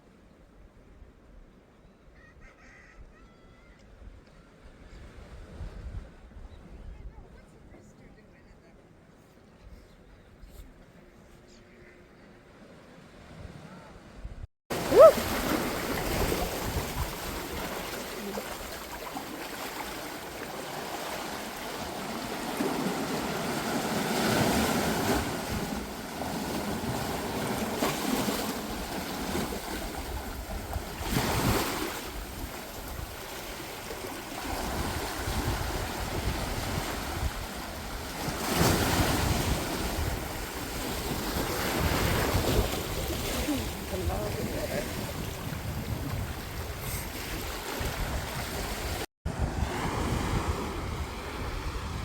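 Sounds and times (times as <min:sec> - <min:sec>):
ocean surf on shore: 0:12.4 - 0:52.0
wind buffeting microphone: 0:34.5 - 0:52.0.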